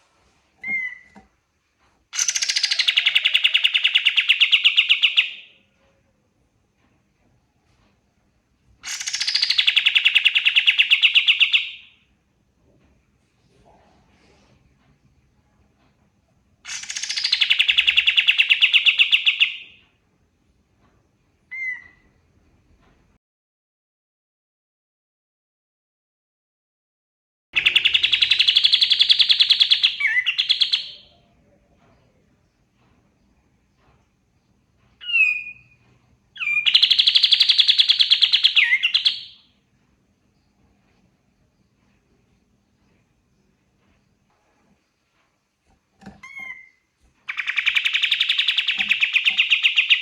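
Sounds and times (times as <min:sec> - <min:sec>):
songbird whistling and trilling: 0:00.6 - 0:01.2, 0:02.2 - 0:05.5, 0:08.9 - 0:11.9, 0:16.7 - 0:19.7, 0:21.5 - 0:22.0, 0:27.6 - 0:31.1, 0:35.0 - 0:35.8, 0:36.4 - 0:39.5, 0:46.2 - 0:50.0
songbird fast trill: 0:46.2 - 0:50.0.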